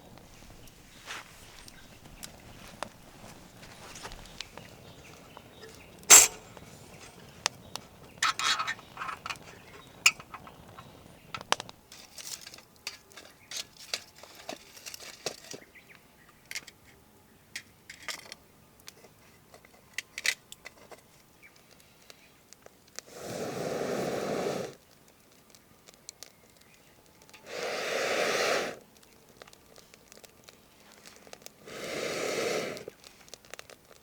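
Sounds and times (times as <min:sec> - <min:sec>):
objects being handled: 0:00.0 - 0:15.8.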